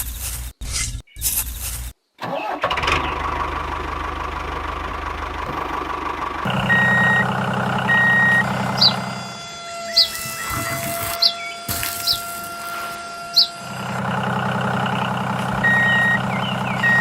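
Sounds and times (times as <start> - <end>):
small engine running: 2.4 - 17.0
bird chirp: 6.5 - 12.4, 13.3 - 17.0.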